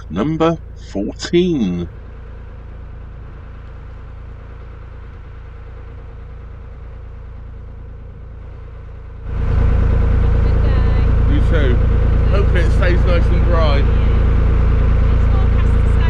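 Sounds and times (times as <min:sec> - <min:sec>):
boat diesel engine humming: 0:00.0 - 0:01.9, 0:09.3 - 0:16.0
loud low rumble: 0:00.0 - 0:01.9, 0:09.5 - 0:16.0.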